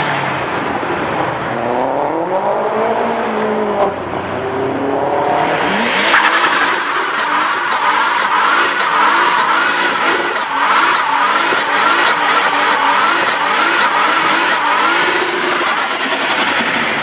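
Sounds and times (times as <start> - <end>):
car engine revving: 0.0 - 17.0
high squeal: 6.0 - 15.7.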